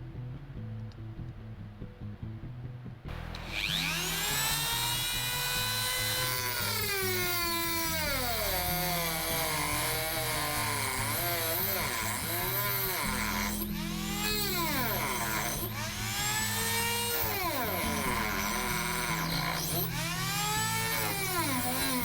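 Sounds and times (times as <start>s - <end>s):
background music: 0.0s - 22.0s
electric drill whining: 3.1s - 22.0s.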